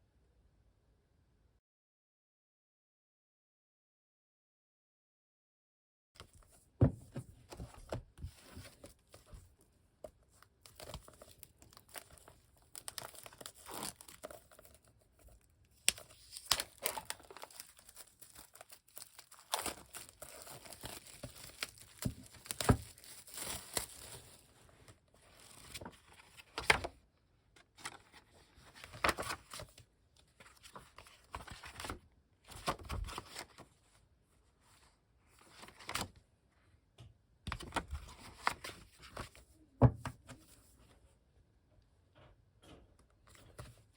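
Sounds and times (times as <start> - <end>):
packaging tearing and crinkling: 10.7 - 14.9, 15.8 - 24.5.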